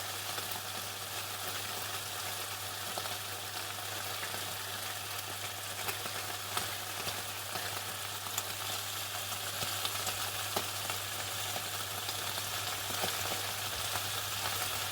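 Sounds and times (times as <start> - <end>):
chicken frying in hot oil: 0.0 - 14.9.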